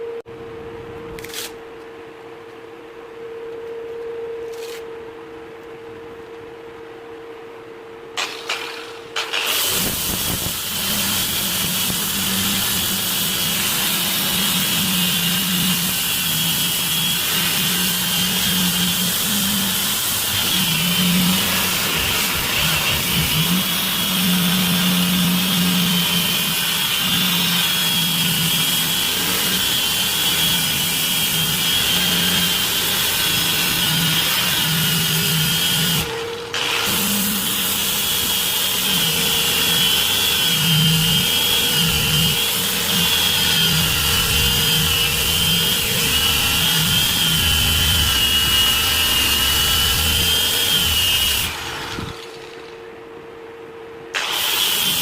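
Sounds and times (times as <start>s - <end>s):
electric power tool whining: 8.2s - 52.9s, 54.1s - 55.0s.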